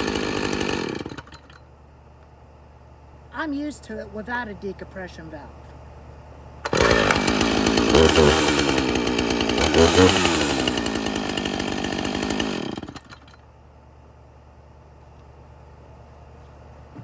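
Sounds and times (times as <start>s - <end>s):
chainsaw engine revving: 0.0s - 1.6s, 6.6s - 13.4s.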